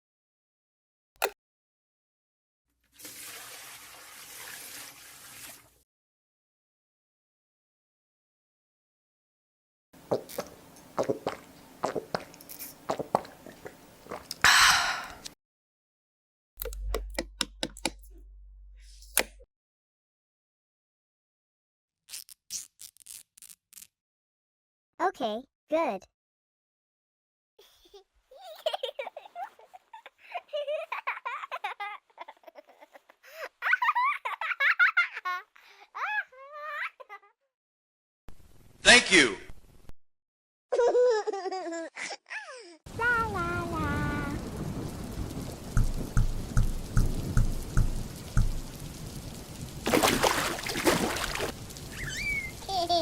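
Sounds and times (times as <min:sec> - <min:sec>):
high-pitched childlike giggling: 0:27.7 - 0:37.4, 0:40.7 - 0:42.8, 0:52.1 - 0:53.0.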